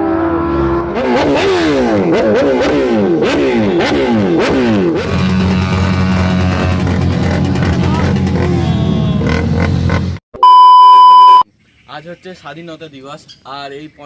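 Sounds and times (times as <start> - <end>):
motorcycle engine revving and idling: 0.0 - 10.2.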